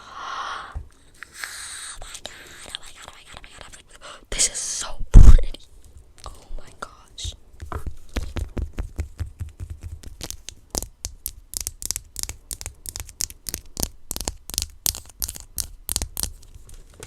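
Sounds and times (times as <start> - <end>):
fingernail tapping and scratching: 7.2 - 16.3.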